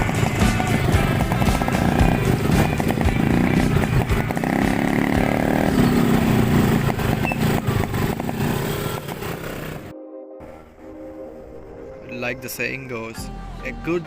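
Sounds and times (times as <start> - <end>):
motorcycle engine running: 0.0 - 9.9.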